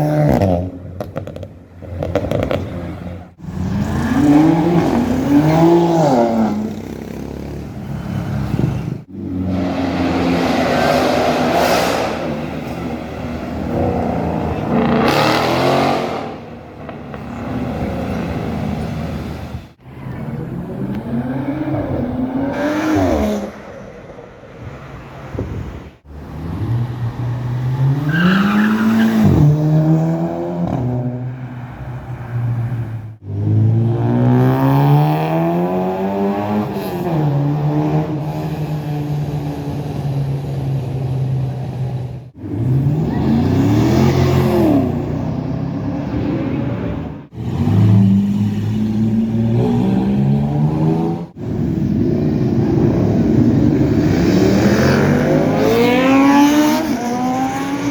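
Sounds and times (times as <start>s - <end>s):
sports cars accelerating past: 3.5s - 19.6s, 42.4s - 57.9s.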